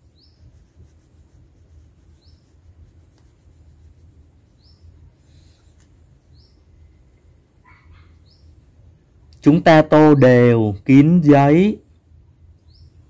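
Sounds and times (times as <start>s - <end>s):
crayon rubbing on paper: 0.0s - 6.3s
small bird chirping: 0.0s - 8.7s, 12.5s - 13.0s
steady low hum: 0.0s - 13.0s.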